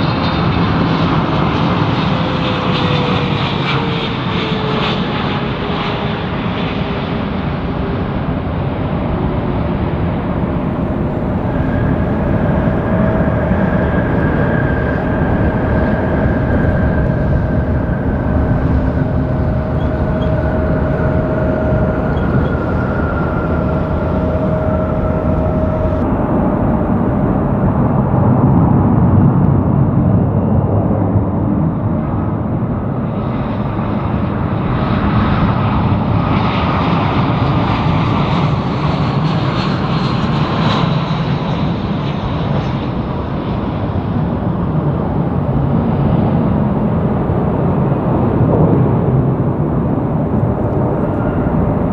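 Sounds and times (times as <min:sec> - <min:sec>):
jet airliner engine rumble and whine: 0:00.0 - 0:29.5, 0:42.0 - 0:51.9.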